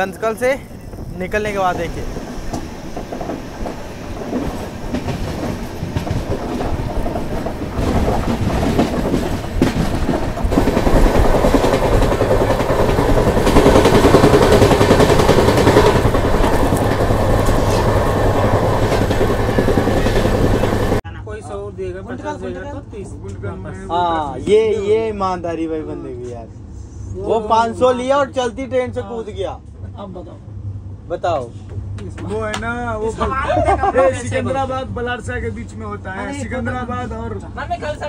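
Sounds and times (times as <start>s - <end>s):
train wheels clattering on rails: 0.4s - 21.0s.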